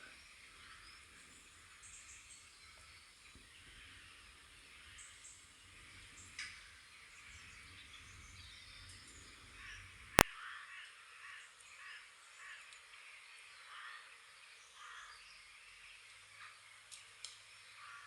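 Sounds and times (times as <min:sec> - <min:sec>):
low hum: 0:00.0 - 0:10.2
birds calling: 0:00.0 - 0:12.8, 0:13.6 - 0:18.0.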